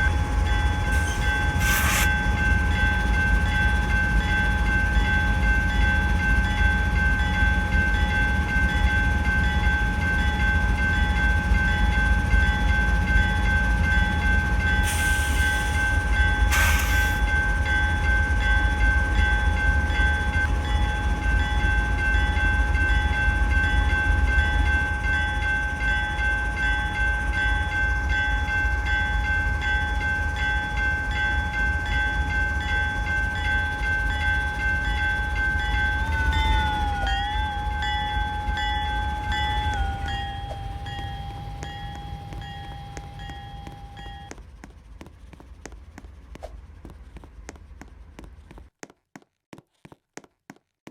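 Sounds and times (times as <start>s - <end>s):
high whine: 0.0s - 12.2s, 30.1s - 47.9s
freight train rumble: 0.0s - 48.8s.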